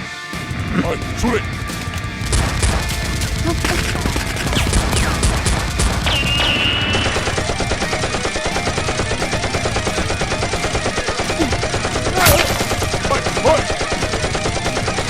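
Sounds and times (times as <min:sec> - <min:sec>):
rapid automatic gunfire: 0:02.1 - 0:15.0
loud bang: 0:02.2 - 0:07.7.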